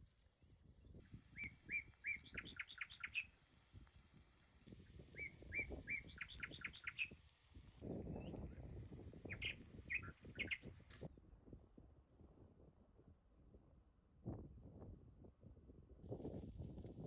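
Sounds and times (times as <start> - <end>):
songbird singing: 1.0 - 3.4, 4.9 - 7.2, 8.1 - 10.8.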